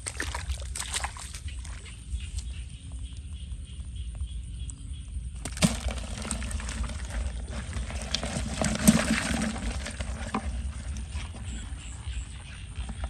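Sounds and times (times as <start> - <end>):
splashing in shallow water: 0.0 - 2.6, 5.4 - 13.0.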